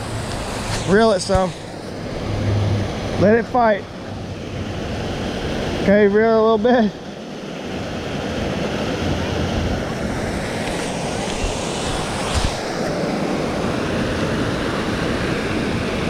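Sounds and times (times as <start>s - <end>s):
river rushing: 0.0s - 16.0s
wind rumbling on microphone: 7.8s - 16.0s.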